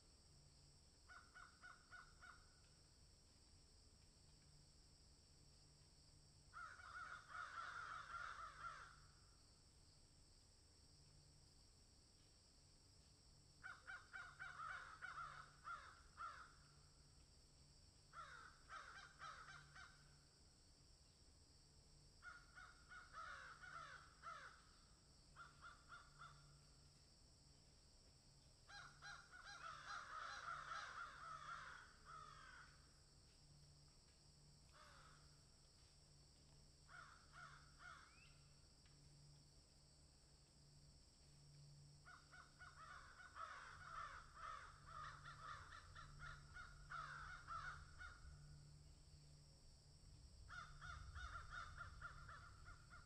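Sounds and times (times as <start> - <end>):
faint bird calls: 1.0 - 2.8, 6.5 - 9.2, 13.6 - 16.8, 18.1 - 20.2, 22.2 - 26.9, 28.6 - 32.8, 36.8 - 38.6, 42.0 - 48.6, 50.5 - 53.0
low steady hum: 32.8 - 53.0.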